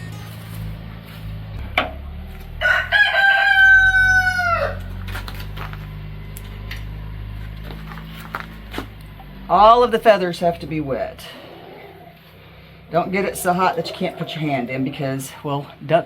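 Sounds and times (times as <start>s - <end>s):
rooster crowing: 2.2s - 5.1s.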